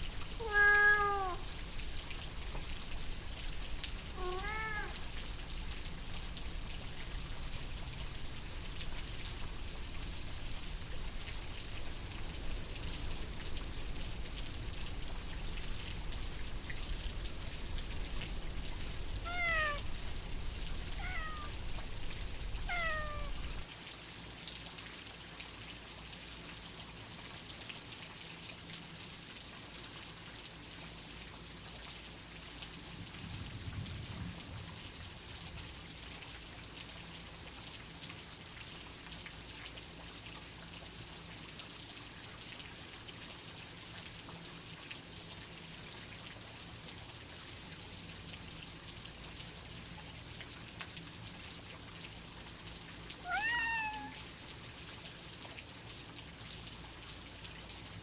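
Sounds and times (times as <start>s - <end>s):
steady rain falling: 0.0s - 58.0s
cat meowing: 0.4s - 1.5s, 4.1s - 5.1s, 19.2s - 20.0s, 20.9s - 21.6s, 22.6s - 23.6s, 53.2s - 54.3s
low rumble of thunder: 1.4s - 23.6s, 33.0s - 35.8s.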